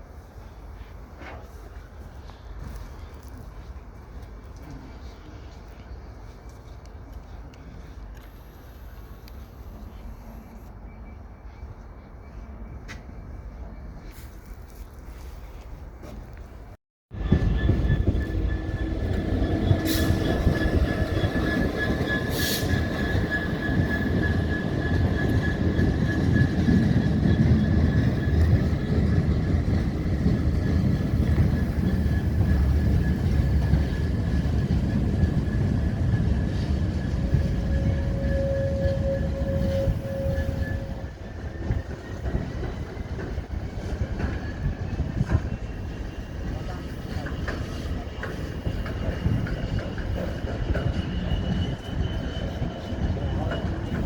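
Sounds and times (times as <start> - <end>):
train rumbling on rails: 0.0 - 54.0
high-pitched wheel squeal: 17.2 - 29.0, 30.4 - 42.9, 43.7 - 54.0.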